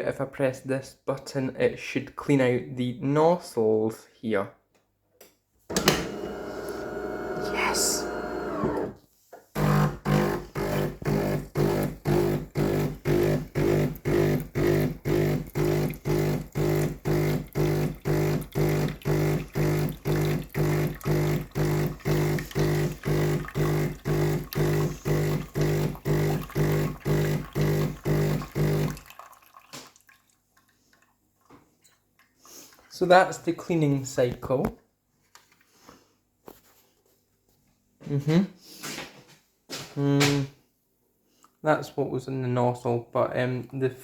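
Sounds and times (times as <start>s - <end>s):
espresso machine pump pulsing: 5.7s - 9.0s, 9.6s - 29.0s.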